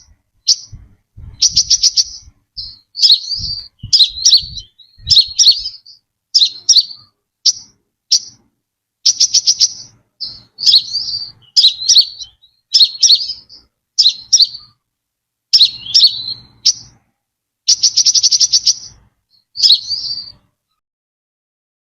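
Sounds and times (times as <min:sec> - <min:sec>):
bird rattling trills: 0:00.0 - 0:08.4, 0:09.1 - 0:14.7, 0:17.7 - 0:19.0
bird chirping: 0:00.0 - 0:14.8, 0:15.5 - 0:17.1, 0:17.7 - 0:20.8.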